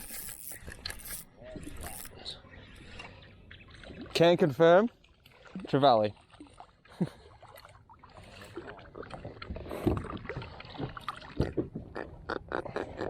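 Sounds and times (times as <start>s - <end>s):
water noise: 0.0s - 13.0s.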